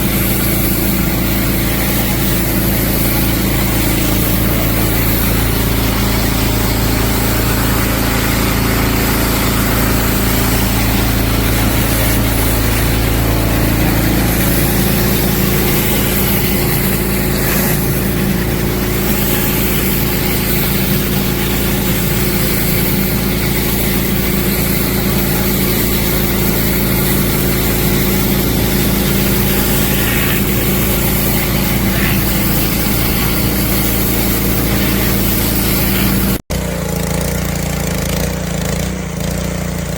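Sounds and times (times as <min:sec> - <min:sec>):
water spray hissing: 0:00.0 - 0:36.4
small gasoline engine running: 0:00.0 - 0:39.9.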